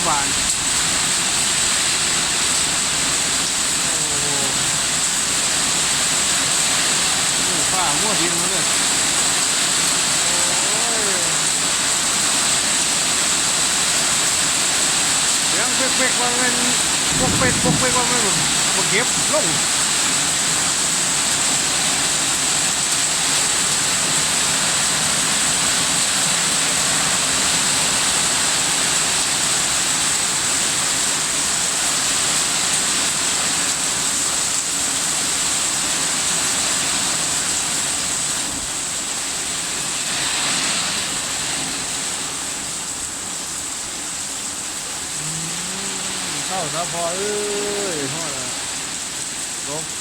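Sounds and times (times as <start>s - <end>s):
strong wind blowing: 16.6s - 20.6s.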